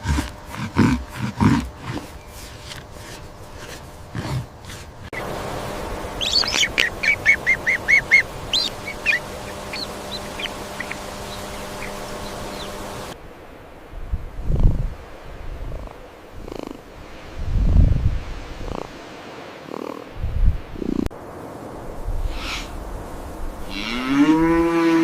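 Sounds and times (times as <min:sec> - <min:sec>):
steady low hum: 0:00.0 - 0:13.2
bird giving short high calls: 0:06.2 - 0:12.9.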